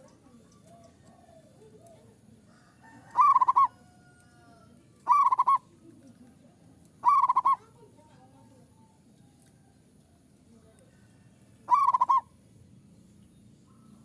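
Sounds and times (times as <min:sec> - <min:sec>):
dove cooing: 0:03.0 - 0:03.8, 0:05.1 - 0:05.7, 0:07.0 - 0:07.7, 0:11.7 - 0:12.3.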